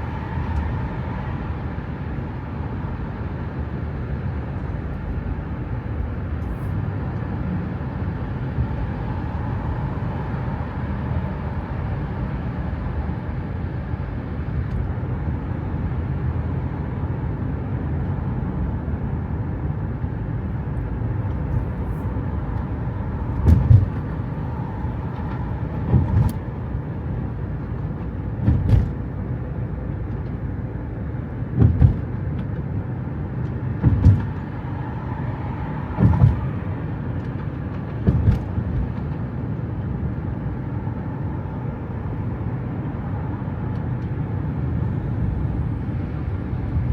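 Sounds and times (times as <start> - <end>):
car driving rumble: 0.0 - 46.9
dull low thump: 21.3 - 26.8, 28.3 - 29.1, 31.5 - 32.6, 33.8 - 34.6, 35.9 - 36.7, 37.9 - 39.0.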